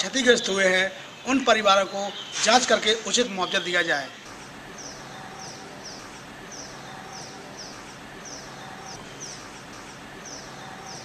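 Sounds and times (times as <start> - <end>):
rural outdoor ambience: 0.0 - 11.0
small bird chirping: 4.8 - 9.5, 10.2 - 11.0.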